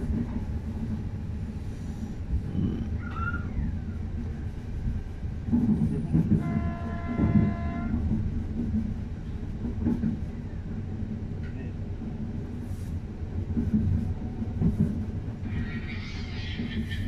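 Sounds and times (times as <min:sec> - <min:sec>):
train rumble inside carriage: 0:00.0 - 0:17.0
train horn: 0:06.3 - 0:08.1.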